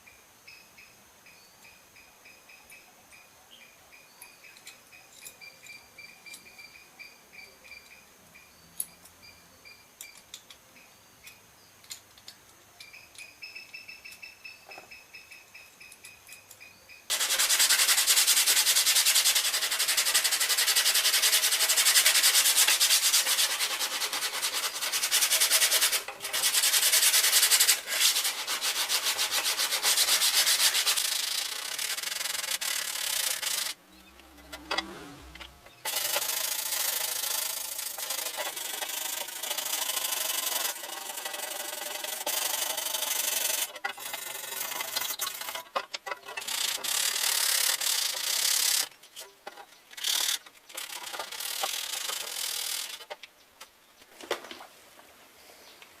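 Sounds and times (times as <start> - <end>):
sanding rusty metal: 17.1 - 33.8, 35.2 - 48.9, 50.0 - 53.1.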